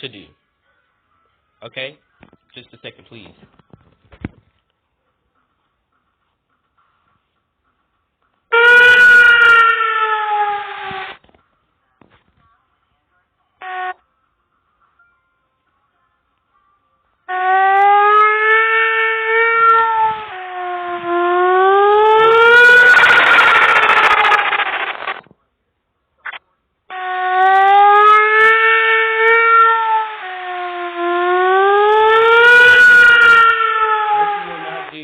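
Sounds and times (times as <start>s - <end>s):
tornado siren wailing: 8.5s - 11.2s, 17.3s - 25.2s, 26.9s - 35.0s.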